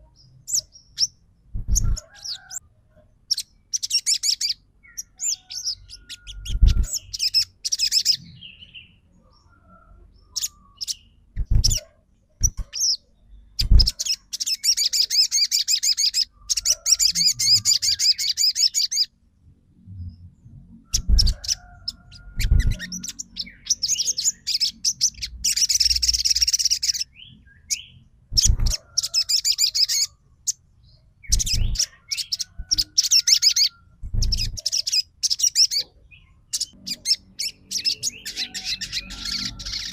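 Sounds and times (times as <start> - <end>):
songbird chattering trills: 3.3 - 8.9, 12.4 - 19.1, 21.0 - 30.6, 31.2 - 39.9.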